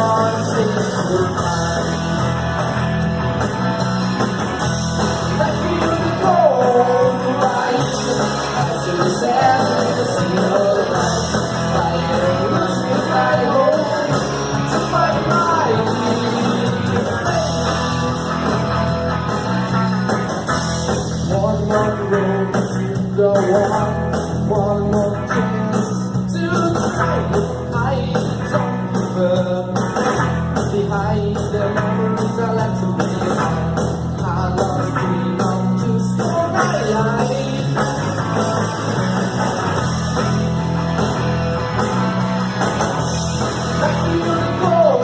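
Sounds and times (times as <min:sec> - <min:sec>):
person singing: 0:00.0 - 0:02.0, 0:05.2 - 0:18.4, 0:21.2 - 0:30.0, 0:34.2 - 0:39.1, 0:43.7 - 0:45.0
guitar: 0:00.0 - 0:45.0
rock band playing live: 0:00.0 - 0:45.0.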